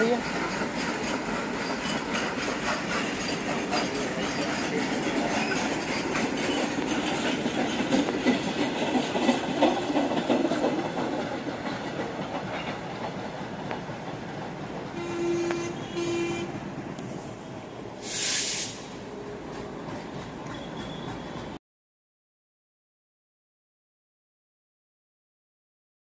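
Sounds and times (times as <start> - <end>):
train wheels clattering: 0.0 - 15.8, 18.2 - 21.6
train horn blasts: 15.0 - 16.6
sharp hiss: 18.0 - 19.0.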